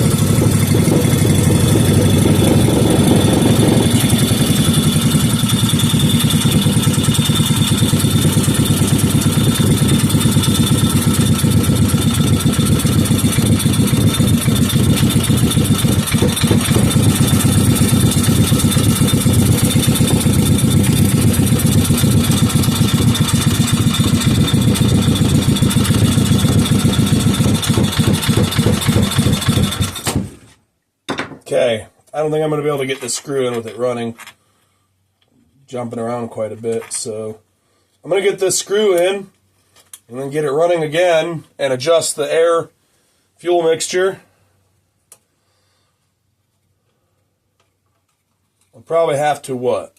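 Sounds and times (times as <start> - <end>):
single-cylinder engine running: 0.0 - 30.4.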